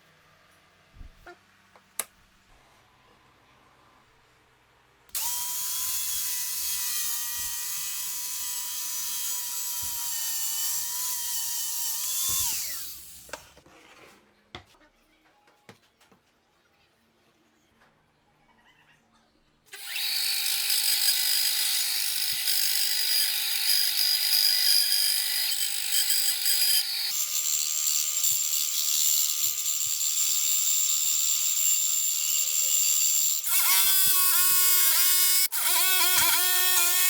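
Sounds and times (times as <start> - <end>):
electric power tool whining: 5.1 - 13.3, 19.8 - 37.0.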